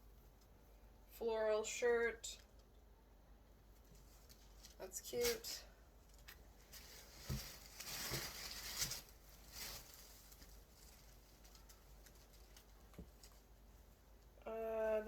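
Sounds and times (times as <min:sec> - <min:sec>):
clothing fabric rustling: 0:03.7 - 0:13.9
soft bumps: 0:06.9 - 0:09.9.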